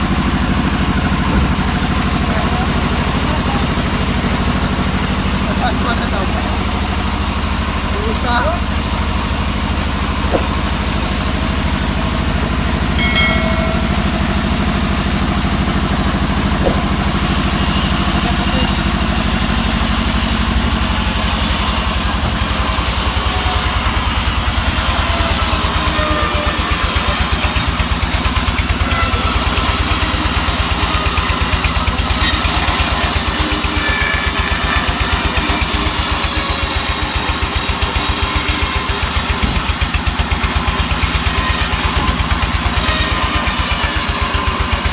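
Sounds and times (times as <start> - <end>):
sawmill engine firing beat: 0.0 - 44.9.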